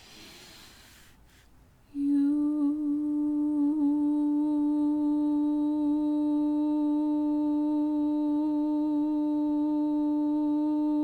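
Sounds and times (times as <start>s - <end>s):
faint in-breath: 0.0s - 2.0s
person chanting long tone: 1.9s - 11.0s.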